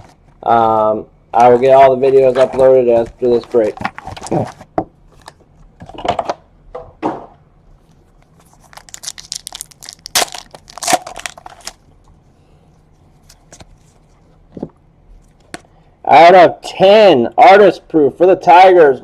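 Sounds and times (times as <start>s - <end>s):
handling sounds: 1.4s - 6.3s
wrapper tearing and crumpling: 8.4s - 11.9s.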